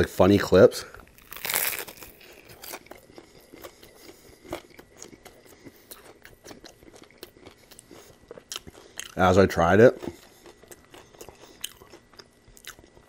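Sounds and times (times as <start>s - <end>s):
close-up chewing with crunches: 0.9s - 13.0s
crunchy bite into fried food: 1.0s - 9.2s.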